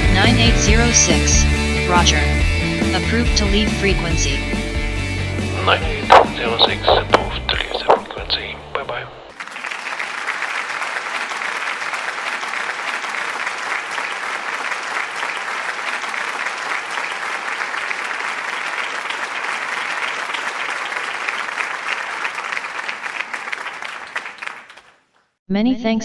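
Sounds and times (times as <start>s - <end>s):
audience applauding: 5.4s - 25.0s.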